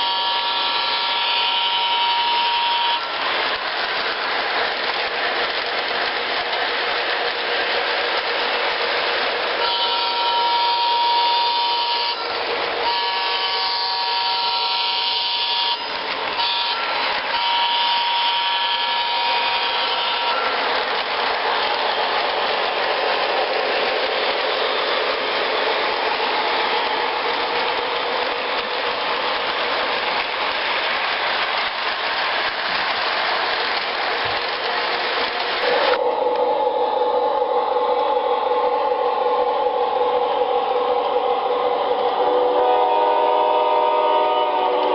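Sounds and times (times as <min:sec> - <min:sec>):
train horn blasts: 0:00.0 - 0:03.2, 0:09.6 - 0:20.6, 0:35.6 - 0:39.4, 0:41.4 - 0:44.9
train running: 0:00.0 - 0:44.9.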